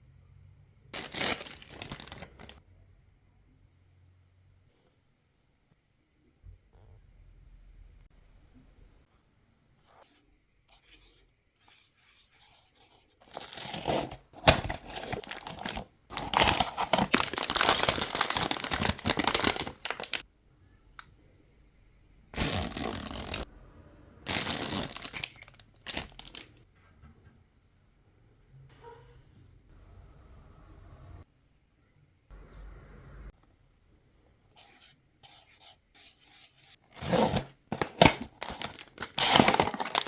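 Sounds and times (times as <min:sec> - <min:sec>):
packaging tearing and crinkling: 0:01.0 - 0:02.6, 0:13.2 - 0:20.2, 0:22.4 - 0:23.4, 0:24.3 - 0:26.5, 0:37.0 - 0:40.0.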